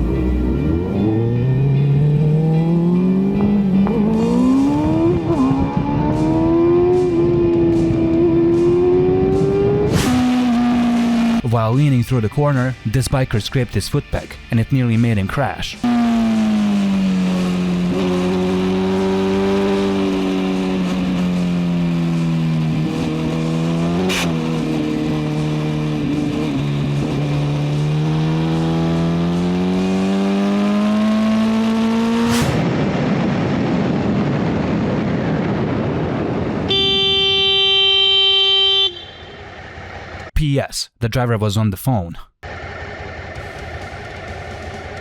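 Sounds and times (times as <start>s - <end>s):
motorcycle engine: 0.0s - 11.4s, 15.8s - 40.3s, 42.4s - 45.0s
road and wind noise: 0.0s - 12.9s, 15.8s - 40.3s, 42.4s - 45.0s
sharp scrape or knock: 32.2s - 32.6s
car horn: 36.6s - 39.7s.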